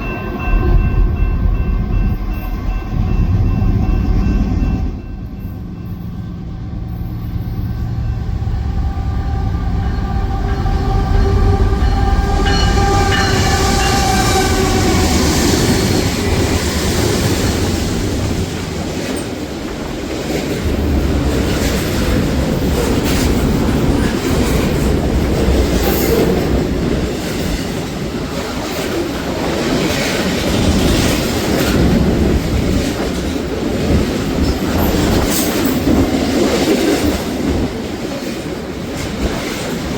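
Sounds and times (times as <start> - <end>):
train horn: 7.3 - 16.4.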